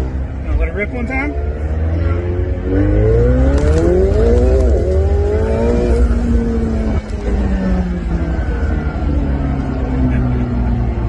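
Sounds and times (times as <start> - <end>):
sports car engine revving: 0.0 - 11.0.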